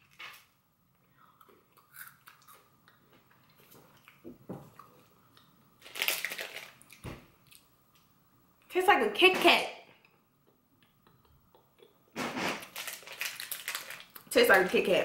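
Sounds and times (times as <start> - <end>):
crunching and chewing wafer bar: 1.4 - 4.2, 4.8 - 7.6, 12.6 - 14.3
foil wrapper crackling: 5.8 - 7.0, 12.5 - 15.0.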